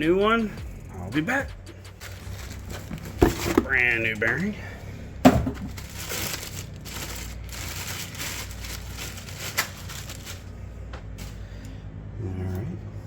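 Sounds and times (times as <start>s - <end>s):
rustling and handling noise: 1.8s - 4.7s, 5.3s - 11.7s.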